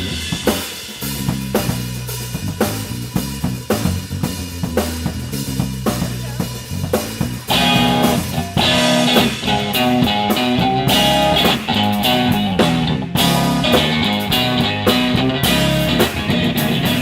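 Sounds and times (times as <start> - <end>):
bass guitar: 0.0 - 17.0
drums: 0.0 - 17.0
electric guitar playing: 7.5 - 17.0.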